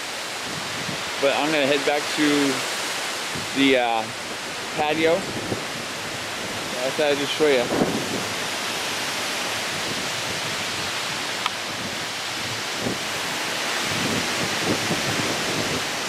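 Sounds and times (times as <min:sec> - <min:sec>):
strong wind rushing: 0:00.4 - 0:01.9, 0:03.2 - 0:16.0.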